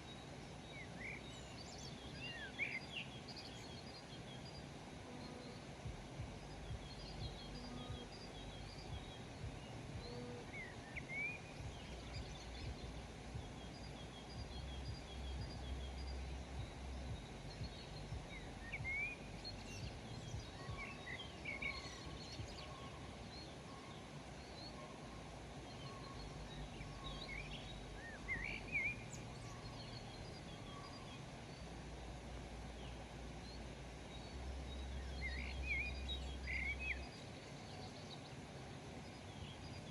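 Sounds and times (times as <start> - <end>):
background hiss: 0.0 - 39.9
songbirds chirping: 0.0 - 39.9
low rumble: 5.8 - 10.9, 11.5 - 20.8.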